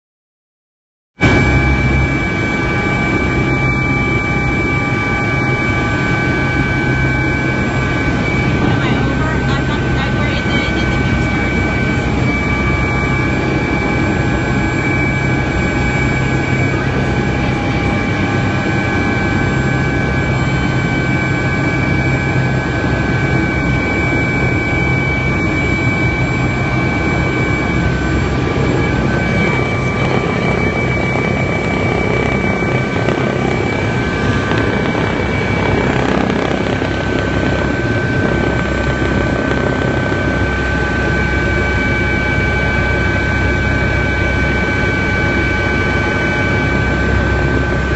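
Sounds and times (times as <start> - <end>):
helicopter engine and rotor drone: 1.2 - 47.9.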